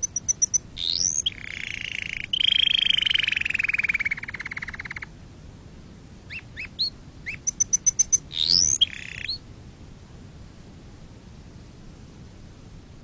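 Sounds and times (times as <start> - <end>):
canary singing: 0.0 - 5.1, 6.3 - 9.4.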